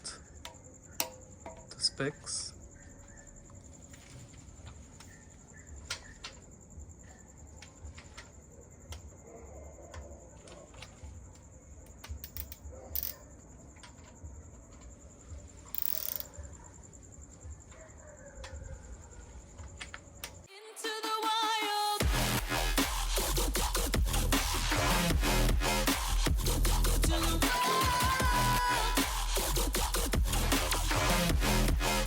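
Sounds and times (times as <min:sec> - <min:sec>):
hand tool clicks and knocks: 0:00.4 - 0:01.8, 0:11.9 - 0:13.2
high-pitched insect drone: 0:15.4 - 0:17.2.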